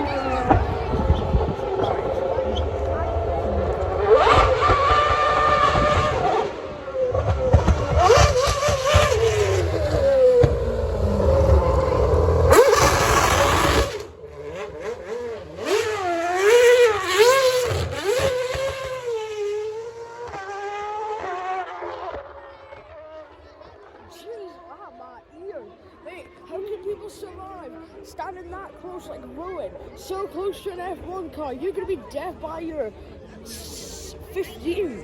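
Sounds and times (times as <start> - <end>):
racing car engine revving: 0.0 - 22.8.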